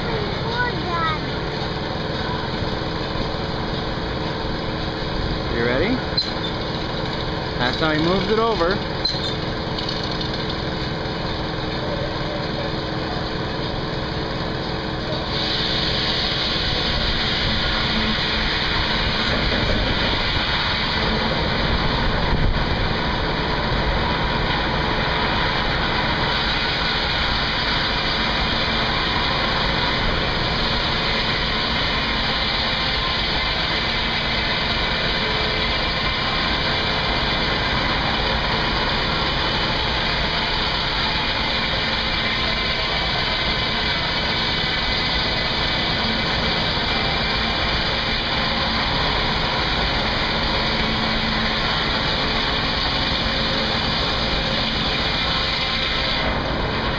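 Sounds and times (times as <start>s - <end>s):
sawmill machinery running: 0.0s - 56.9s
steam hiss: 15.1s - 56.9s.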